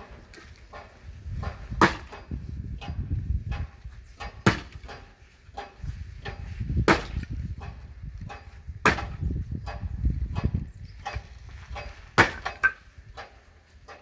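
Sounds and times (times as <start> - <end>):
axe chopping firewood: 1.4 - 2.3, 4.2 - 5.1, 6.2 - 7.8, 8.8 - 9.3, 12.1 - 12.8.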